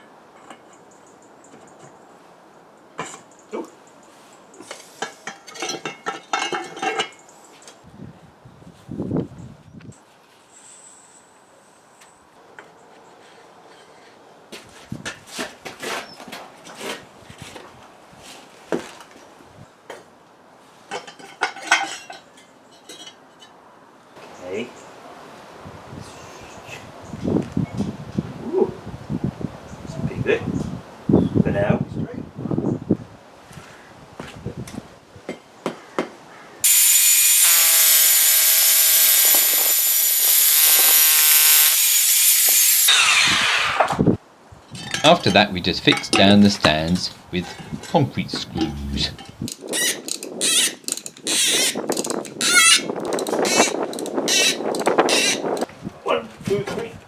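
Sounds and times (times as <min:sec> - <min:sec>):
electric drill whining: 0:36.6 - 0:44.0, 0:45.6 - 0:49.3.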